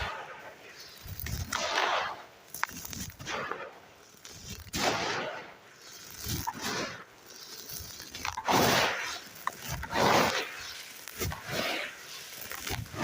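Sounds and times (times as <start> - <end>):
sand crumbling by hand: 0.0 - 13.0.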